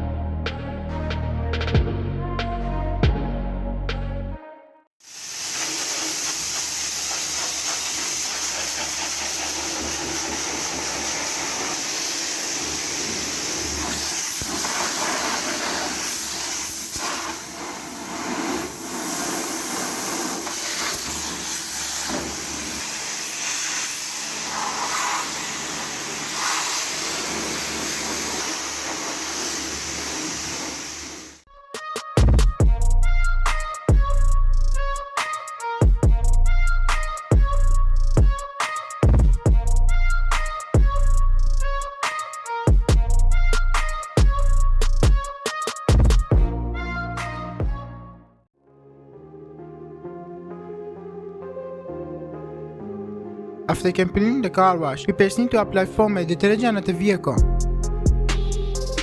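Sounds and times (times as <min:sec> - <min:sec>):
pressure washer spraying water: 0:05.0 - 0:31.4.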